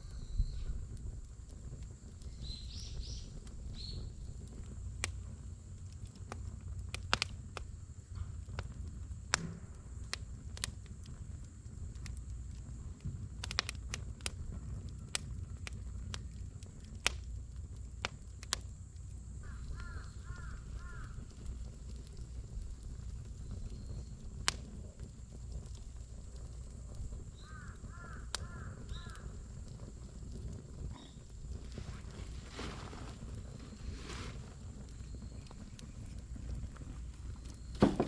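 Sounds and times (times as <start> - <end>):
campfire crackling and popping: 0.0 - 38.0.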